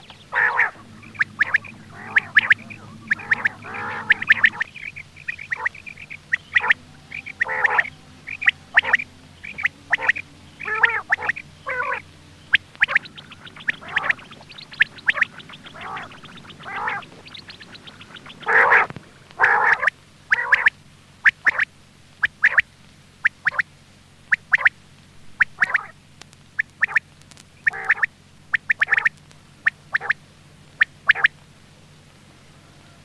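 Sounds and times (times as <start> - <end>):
quail calling: 0.0 - 23.7, 24.3 - 26.0, 26.6 - 31.4
faint steady hum: 0.0 - 33.0.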